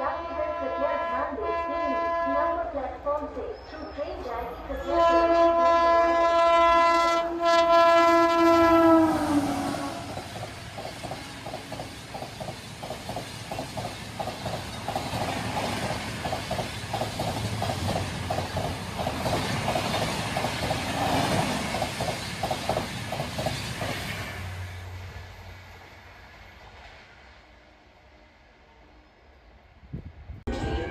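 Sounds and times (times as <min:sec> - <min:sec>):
train horn blaring: 0:00.0 - 0:02.8, 0:04.8 - 0:10.3, 0:11.2 - 0:11.7, 0:30.5 - 0:30.9
train coaches rushing by: 0:08.9 - 0:27.5
train wheels clickety-clack: 0:10.0 - 0:24.4.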